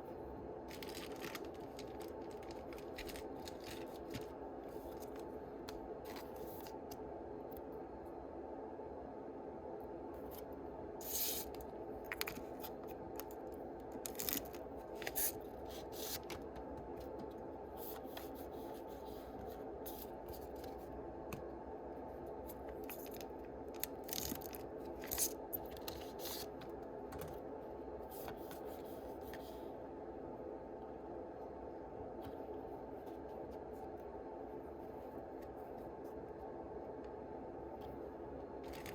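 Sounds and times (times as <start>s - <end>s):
low background hum: 0.0s - 38.9s
foil wrappers crinkling: 0.7s - 5.2s, 14.0s - 15.3s
cards rubbing and sliding: 23.0s - 26.6s.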